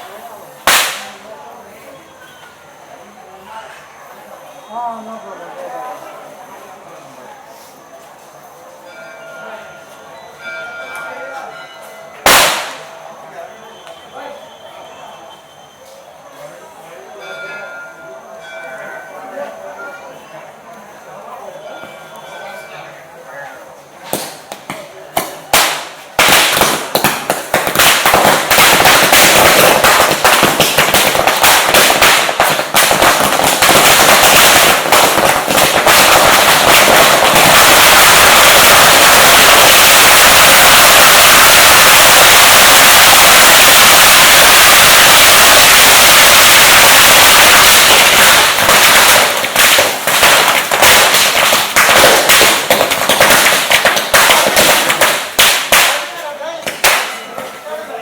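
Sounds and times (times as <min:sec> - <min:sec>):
firecrackers going off: 0:00.0 - 0:07.7, 0:12.1 - 0:16.0, 0:24.0 - 0:57.7.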